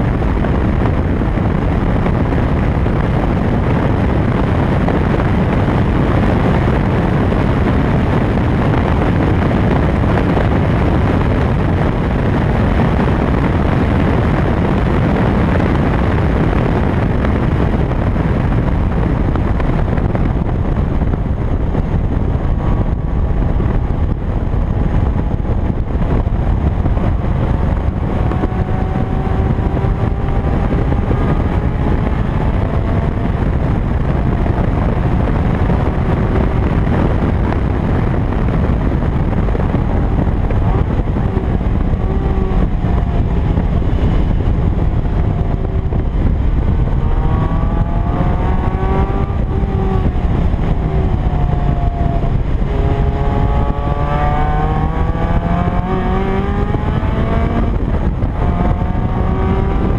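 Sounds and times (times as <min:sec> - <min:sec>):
car engine running hard: 0:00.0 - 0:59.9
wind rushing on microphone: 0:00.0 - 0:59.9.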